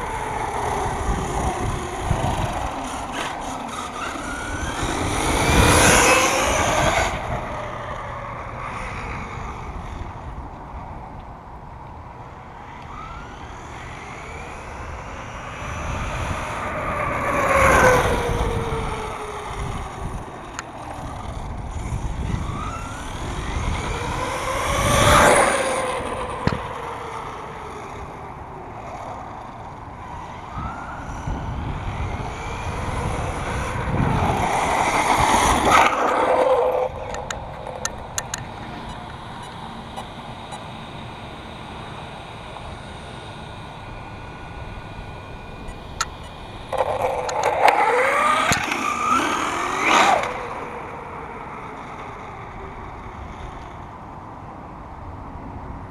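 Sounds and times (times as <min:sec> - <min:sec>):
electric toy truck motor whine: 0:00.0 - 0:10.9, 0:12.2 - 0:55.4.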